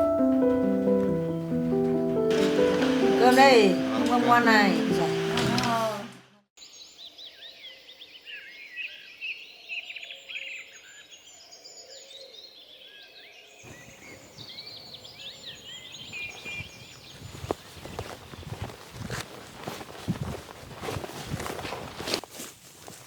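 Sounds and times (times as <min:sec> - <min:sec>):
outdoor background noise: 0:00.9 - 0:23.0
small birds chirping and trilling: 0:06.6 - 0:18.8.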